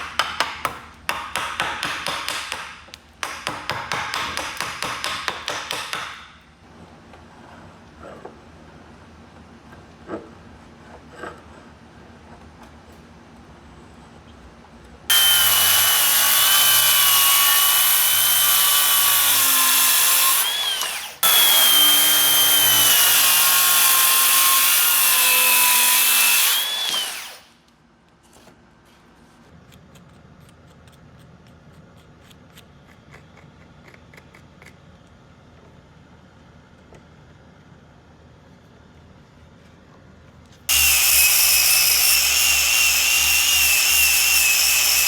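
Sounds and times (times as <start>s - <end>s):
power tool motor whining: 15.1s - 27.5s, 40.7s - 45.0s.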